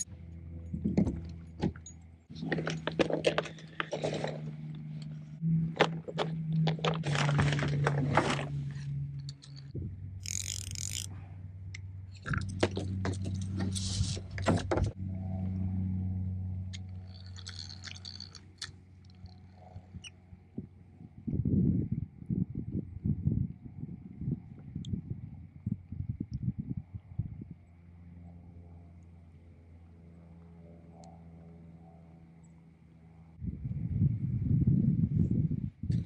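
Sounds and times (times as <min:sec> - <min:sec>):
steady low hum: 0:00.0 - 0:36.0
fishing gear rattling on hull: 0:00.8 - 0:04.4, 0:12.2 - 0:14.9, 0:17.0 - 0:19.7.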